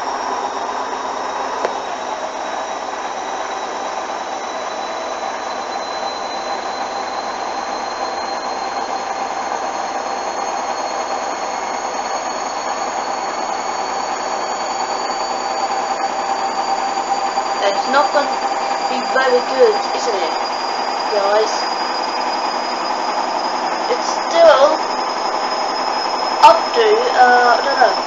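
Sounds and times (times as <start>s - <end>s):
washing machine spin whine: 0.0s - 28.0s.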